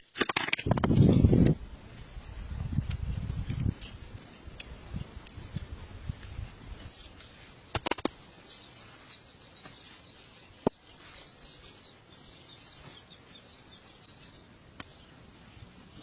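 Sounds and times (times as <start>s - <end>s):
small birds chirping: 2.2s - 16.0s
sharp clicks: 7.7s - 8.2s.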